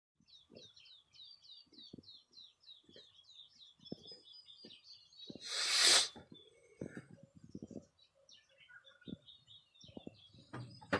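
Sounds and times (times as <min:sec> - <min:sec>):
rapid high bird chirps: 0:00.3 - 0:06.8.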